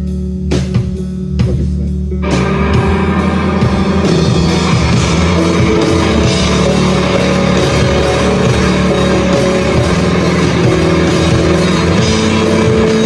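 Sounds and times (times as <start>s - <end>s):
drum kit: 0.0s - 13.0s
electric guitar: 2.1s - 13.0s
live rock band playing: 2.2s - 13.0s.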